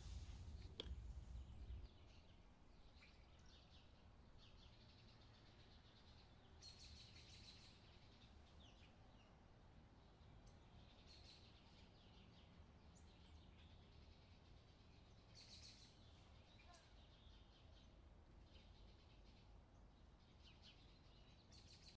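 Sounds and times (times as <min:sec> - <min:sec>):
low background rumble: 0:00.0 - 0:01.9.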